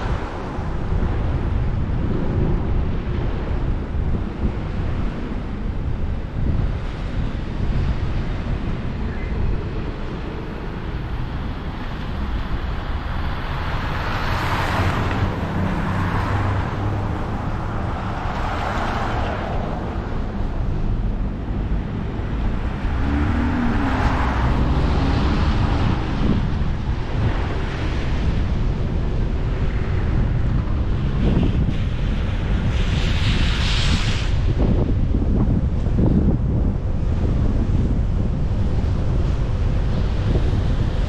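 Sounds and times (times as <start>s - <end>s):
tyre and engine rumble: 0.0s - 41.0s
road hiss: 29.6s - 35.3s.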